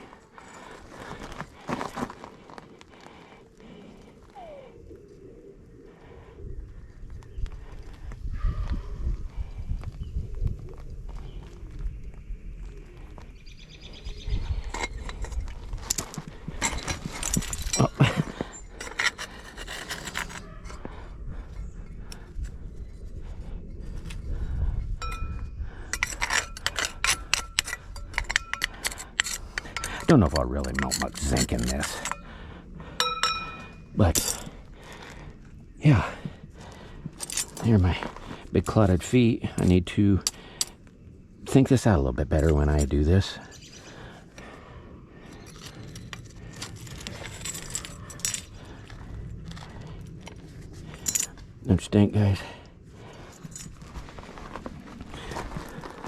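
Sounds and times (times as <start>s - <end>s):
hard objects clinking and scraping: 14.6s - 20.9s, 25.0s - 32.3s, 33.0s - 34.6s, 45.3s - 51.4s.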